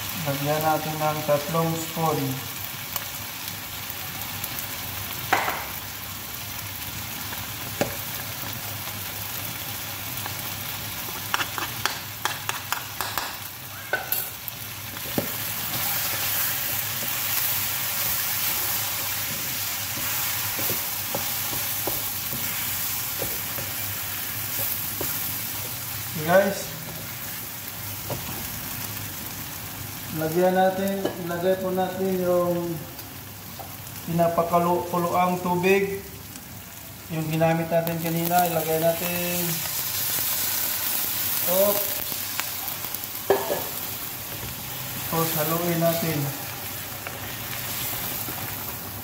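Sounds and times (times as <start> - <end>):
meat sizzling in a frying pan: 0.0 - 49.0
wooden spatula knocking on pan: 11.3 - 13.4.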